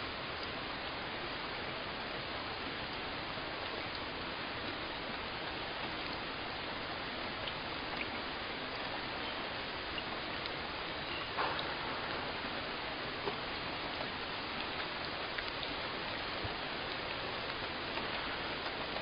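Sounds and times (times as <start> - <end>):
steady rain hiss: 0.0 - 19.0
faint drop ticks: 10.0 - 18.9.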